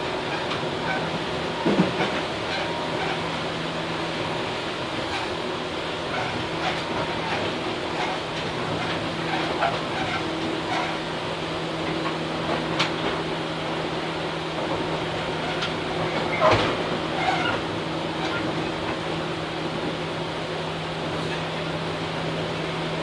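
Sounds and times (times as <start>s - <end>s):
train running gear hum: 0.0s - 23.0s
train wheels rumbling: 0.0s - 23.0s
wheels clicking over rail joints: 6.1s - 11.1s, 14.5s - 19.2s.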